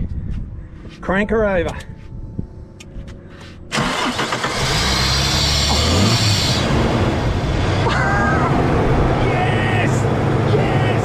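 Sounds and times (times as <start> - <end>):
car engine idling: 3.6 - 11.0
car engine cranking and starting: 3.7 - 9.2.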